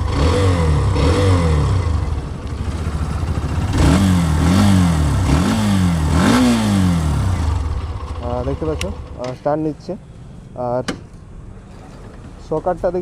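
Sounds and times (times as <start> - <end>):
motorcycle engine revving: 0.0 - 9.3.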